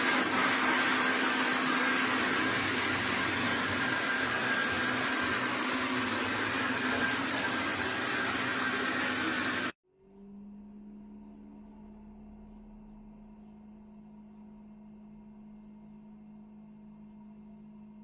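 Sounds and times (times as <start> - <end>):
robot vacuum whirring: 0.0 - 9.7
low hum: 9.9 - 18.0.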